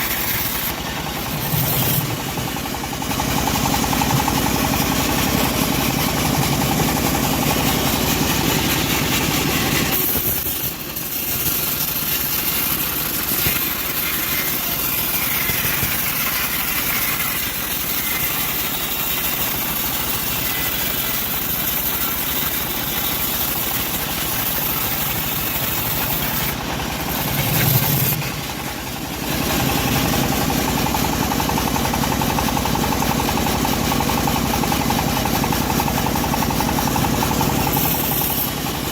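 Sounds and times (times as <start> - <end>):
sawmill engine drone: 0.0 - 38.9
bandsaw high hiss: 7.9 - 30.1, 37.2 - 38.6.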